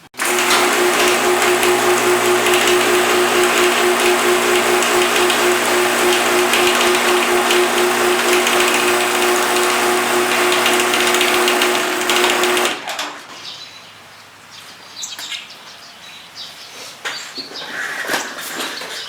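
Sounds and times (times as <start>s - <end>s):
motorised garage door humming: 0.0s - 13.4s.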